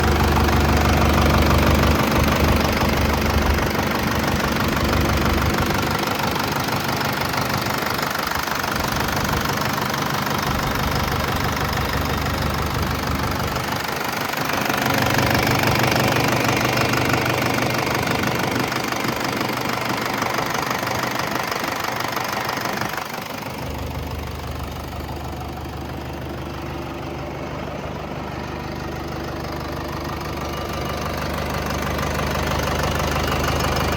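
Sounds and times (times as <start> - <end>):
tractor diesel engine running: 0.0 - 33.9.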